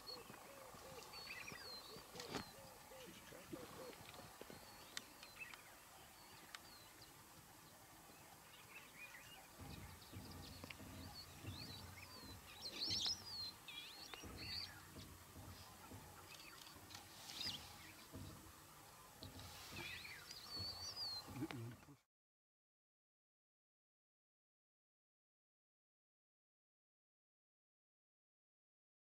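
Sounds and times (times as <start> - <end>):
low murmur: 0.1 - 22.0
small birds chirping and whistling: 8.4 - 21.8.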